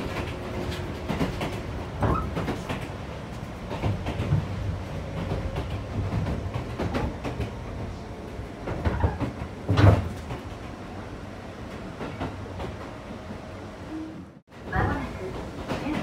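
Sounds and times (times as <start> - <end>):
train car rumbling: 0.0 - 16.0
clunks and knocks: 8.6 - 10.4.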